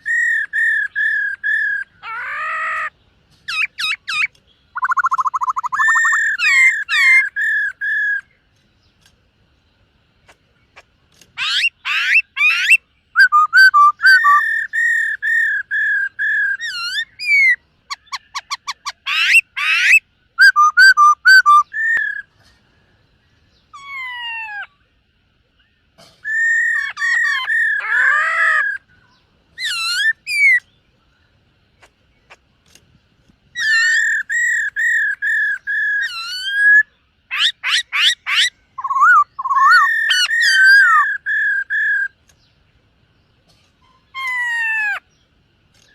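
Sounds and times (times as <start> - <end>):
bird singing whistled phrases: 0.0 - 2.7, 3.5 - 8.3, 11.4 - 22.3, 33.6 - 42.2.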